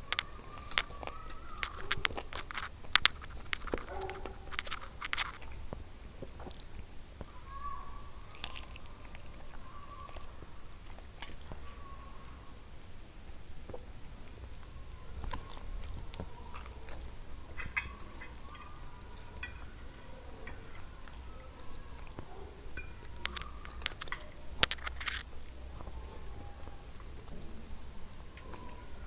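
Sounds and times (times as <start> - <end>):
chewing and wet mouth sounds: 0.0 - 29.0
metal fork clicking on plate: 17.5 - 21.3, 22.8 - 25.0.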